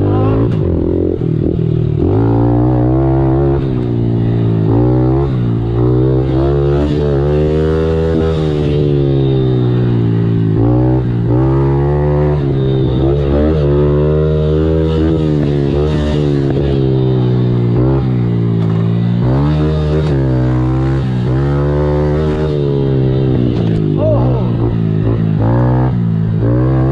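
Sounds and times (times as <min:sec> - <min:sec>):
pit bike engine revving: 0:00.0 - 0:26.9.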